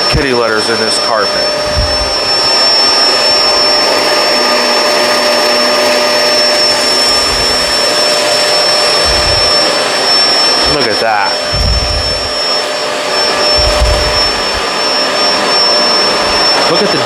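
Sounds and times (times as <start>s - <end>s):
vacuum cleaner motor roaring: 0.0s - 17.0s
low thuds: 1.5s - 2.6s, 7.1s - 7.9s, 9.0s - 9.6s, 11.4s - 12.4s, 13.5s - 14.7s.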